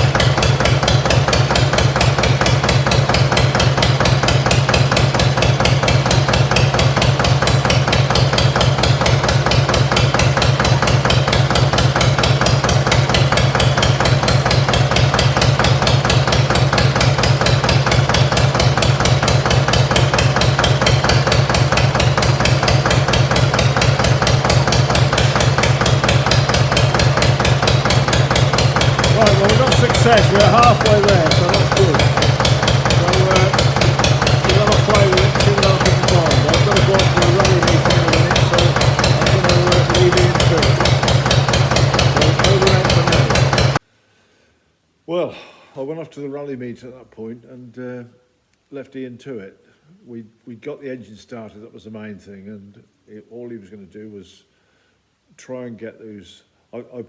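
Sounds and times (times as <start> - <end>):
diesel engine knocking: 0.0 - 43.8.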